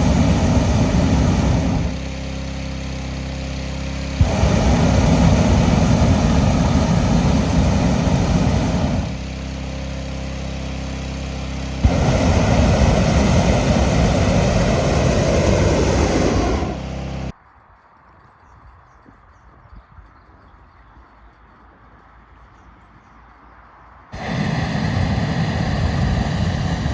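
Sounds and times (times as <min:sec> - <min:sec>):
inflator fan engine drone: 0:00.0 - 0:17.4, 0:24.1 - 0:26.9
propane burner blasts: 0:00.0 - 0:17.4, 0:24.1 - 0:26.9.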